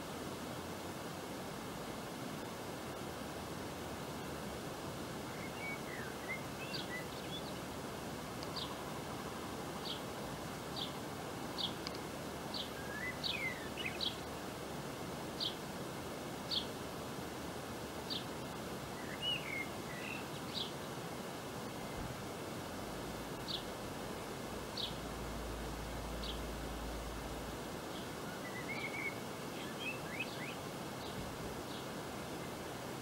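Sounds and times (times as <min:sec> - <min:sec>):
steady background hiss: 0:00.0 - 0:33.0
lower twittering bird calls: 0:05.2 - 0:14.6, 0:15.4 - 0:15.6, 0:16.5 - 0:16.8, 0:18.0 - 0:22.2, 0:23.1 - 0:32.8.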